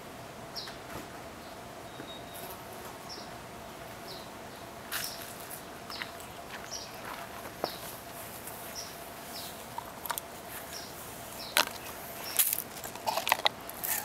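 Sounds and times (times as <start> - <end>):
faint outdoor background noise: 0.0 - 14.0
bird chirping: 1.4 - 2.5, 5.9 - 7.9, 8.7 - 9.6.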